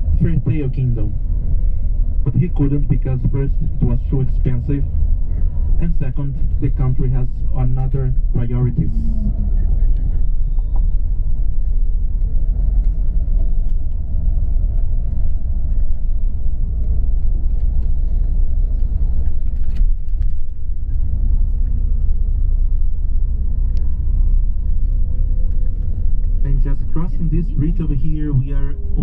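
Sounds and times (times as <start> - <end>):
bus engine and road rumble: 0.0 - 29.0
light clicks and rattles: 11.6 - 26.5.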